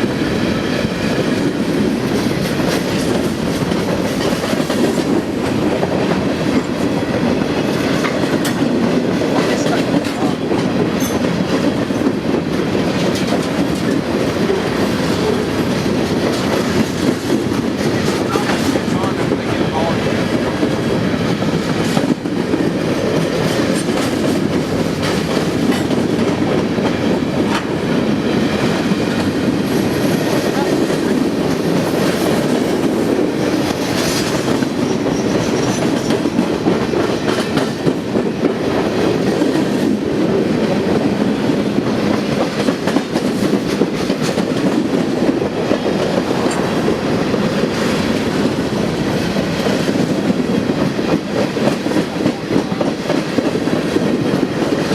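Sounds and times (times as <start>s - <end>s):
steel wheels rumbling on rail: 0.0s - 54.9s.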